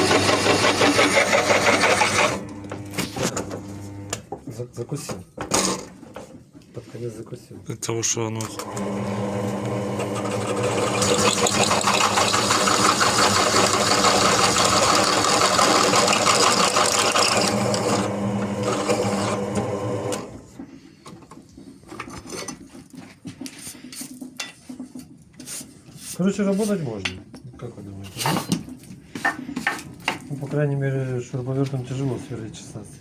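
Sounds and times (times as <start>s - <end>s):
drill bit cutting workpiece: 0.0s - 2.6s, 8.6s - 20.4s
drill press motor hum: 8.6s - 20.4s.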